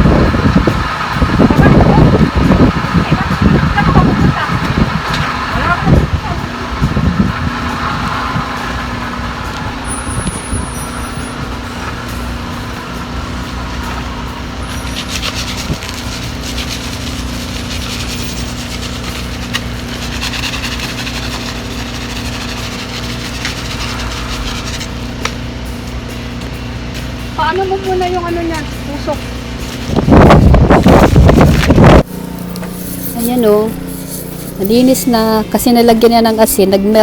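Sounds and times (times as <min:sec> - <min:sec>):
engine humming: 0:00.0 - 0:37.0
rough scraping: 0:06.8 - 0:25.4, 0:29.1 - 0:36.5.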